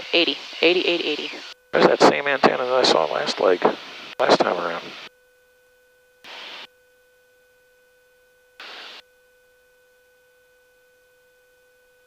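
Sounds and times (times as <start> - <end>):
faint electrical whine: 0.0 - 12.0
bursts of hiss: 6.3 - 6.7, 8.6 - 9.0.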